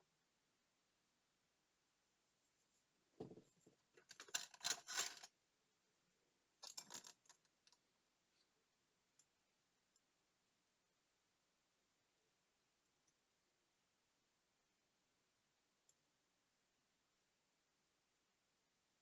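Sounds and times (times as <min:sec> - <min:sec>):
small tools clicking and scraping: 0:04.0 - 0:05.3, 0:06.6 - 0:07.7.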